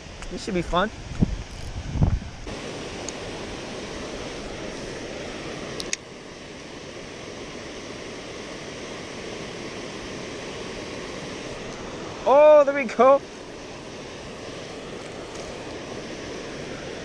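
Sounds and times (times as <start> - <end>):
heavy rain on river water: 2.4 - 17.0.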